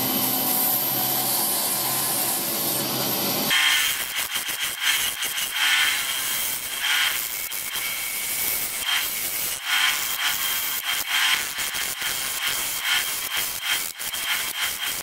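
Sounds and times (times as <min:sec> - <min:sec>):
thin steady whine: 0:00.0 - 0:03.9.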